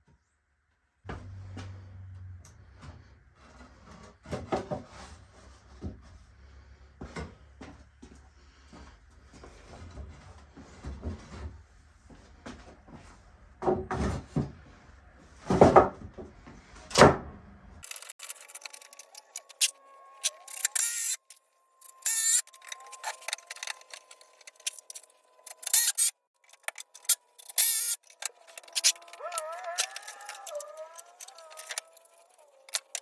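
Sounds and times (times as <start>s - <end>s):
patter of clicks and rattles: 17.8s - 33.0s.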